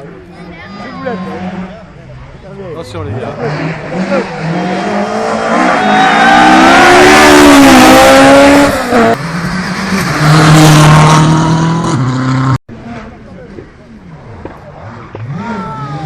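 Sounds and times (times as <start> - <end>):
rally car engine at full throttle: 0.0 - 16.0
road and tyre noise: 0.0 - 16.0.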